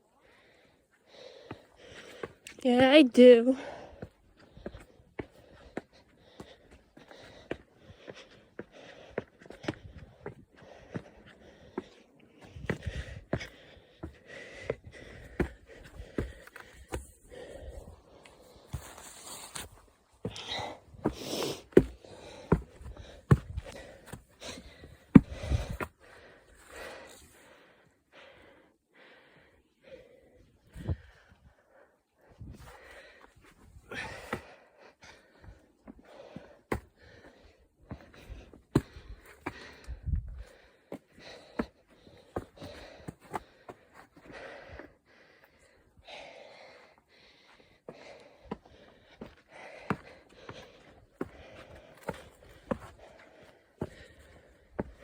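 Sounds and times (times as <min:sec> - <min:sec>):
footsteps on trail: 0:01.4 - 0:26.0, 0:35.4 - 0:44.7, 0:47.9 - 0:55.0
heavy breathing: 0:03.6 - 0:55.0.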